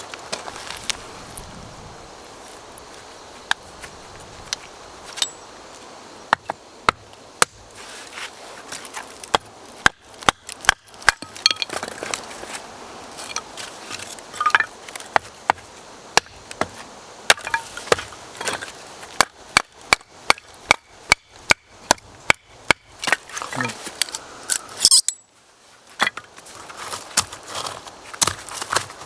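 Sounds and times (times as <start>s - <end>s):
blade chopping wood: 9.3s - 12.2s, 16.2s - 23.2s, 27.2s - 29.0s.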